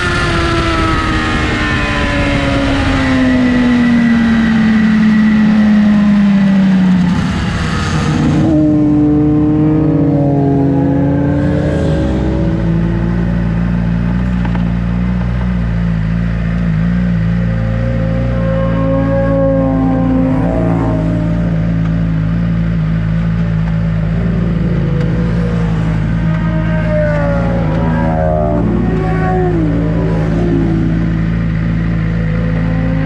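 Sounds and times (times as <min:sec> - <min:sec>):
motorcycle engine: 0:00.0 - 0:33.0.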